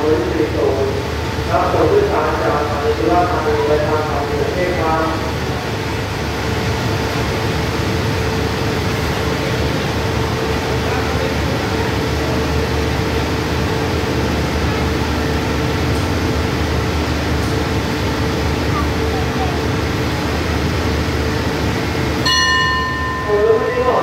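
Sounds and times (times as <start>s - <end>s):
train engines humming: 0.0s - 24.0s
constant mid-pitched tone: 22.2s - 24.0s.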